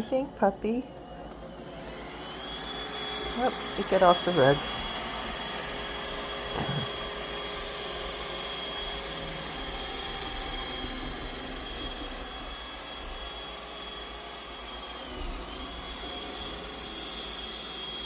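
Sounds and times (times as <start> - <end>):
robot vacuum whirring: 0.8 - 18.0.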